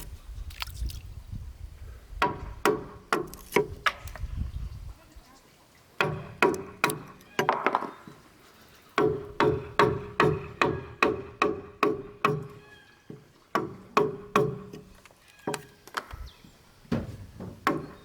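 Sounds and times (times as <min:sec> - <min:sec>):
tool striking wood with ring: 0:06.0 - 0:07.8, 0:09.0 - 0:12.6, 0:13.6 - 0:14.9.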